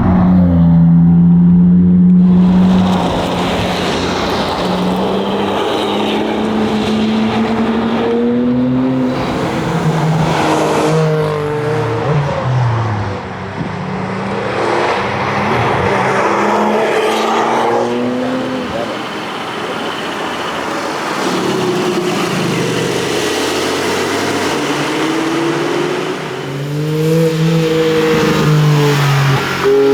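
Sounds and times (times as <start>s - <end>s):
car engine driven hard: 0.0s - 29.9s.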